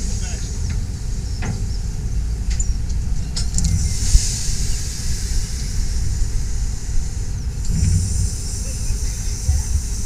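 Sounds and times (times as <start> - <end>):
train wheels rumbling on track: 0.0 - 10.0
high hiss: 3.7 - 10.0.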